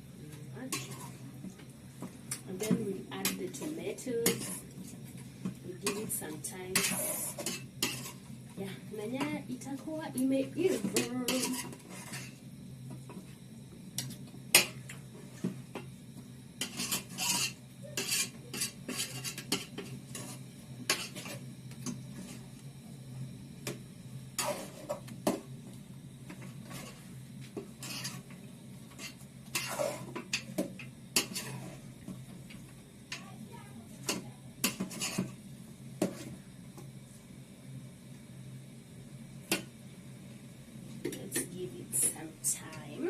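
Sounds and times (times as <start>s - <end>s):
steady low hum: 0.0s - 43.0s
spoon clinking and scraping pot: 0.7s - 1.2s, 6.7s - 8.3s, 10.7s - 12.4s, 16.6s - 21.4s, 27.7s - 30.6s, 31.2s - 31.8s, 34.0s - 35.3s.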